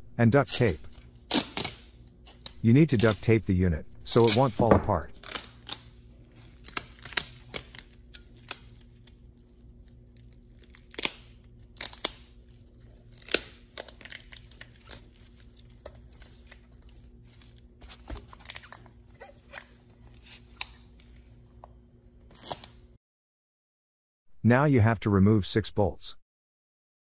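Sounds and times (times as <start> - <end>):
duct tape ripping off roll: 0.5 - 3.3, 5.2 - 9.2, 10.0 - 12.4, 13.0 - 16.6, 22.2 - 22.9
tape crinkling and tapping: 13.1 - 21.8.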